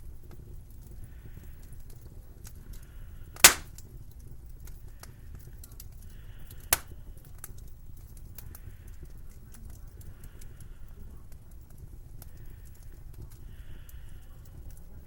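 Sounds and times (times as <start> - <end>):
wood fire crackling: 0.0 - 15.0
loud pops from burning logs: 1.7 - 5.1, 5.7 - 10.6.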